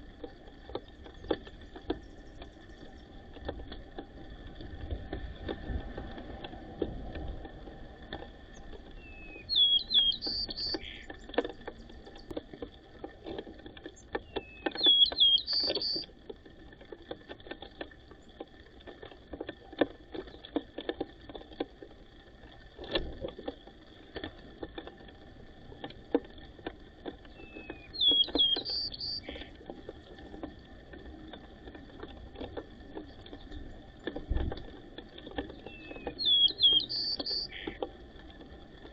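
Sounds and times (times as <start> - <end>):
sparrows chirping: 9.0 - 11.1, 14.3 - 16.0, 27.4 - 29.4, 35.6 - 37.8.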